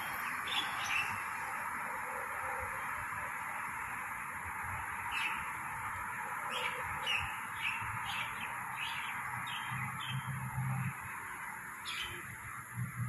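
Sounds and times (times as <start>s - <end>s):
bird chirping: 0.0s - 1.3s, 5.1s - 5.5s, 6.5s - 10.3s, 11.8s - 12.3s.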